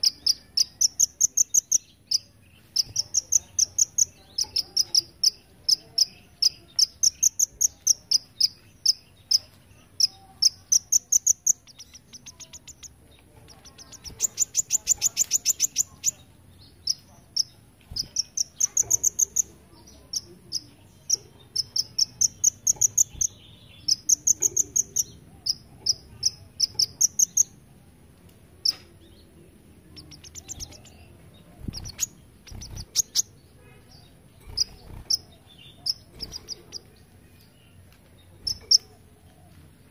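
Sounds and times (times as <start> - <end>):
bird chirping and trilling: 0.0 - 27.6, 28.6 - 39.0.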